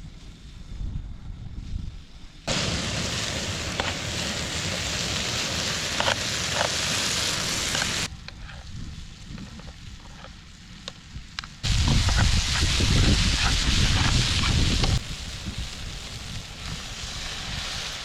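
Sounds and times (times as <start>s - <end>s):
food sizzling in a frying pan: 2.5s - 8.1s, 11.6s - 18.0s.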